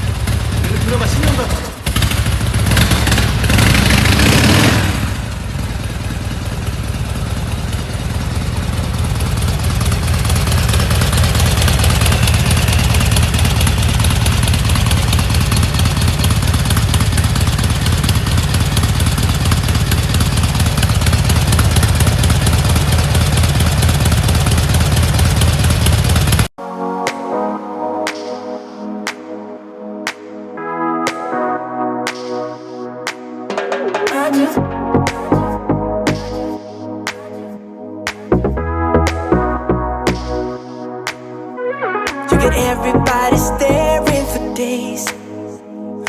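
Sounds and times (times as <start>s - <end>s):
motorcycle engine idling: 0.0s - 3.6s, 5.2s - 26.5s.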